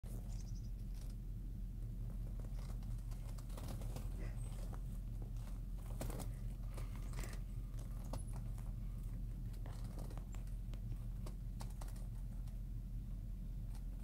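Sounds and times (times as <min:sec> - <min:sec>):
idling car hum inside cabin: 0:00.1 - 0:14.0
light clicks and taps: 0:02.1 - 0:12.6.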